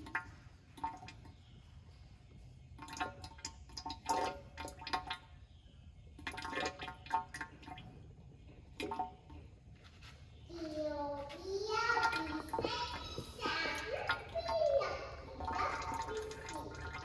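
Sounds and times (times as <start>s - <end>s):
oil splashing and gurgling: 2.7s - 9.7s, 11.8s - 17.0s.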